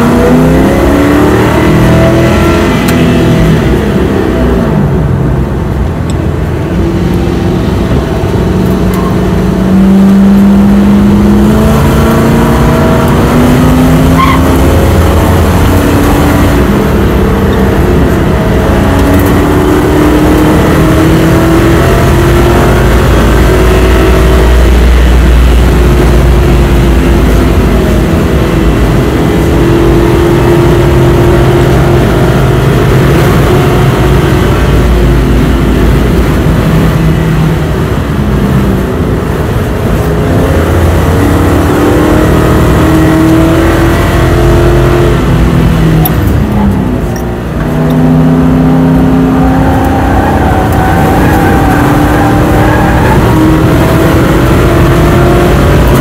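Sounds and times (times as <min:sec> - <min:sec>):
car engine accelerating: 0:00.0 - 0:56.0
road and wind noise: 0:00.0 - 0:56.0.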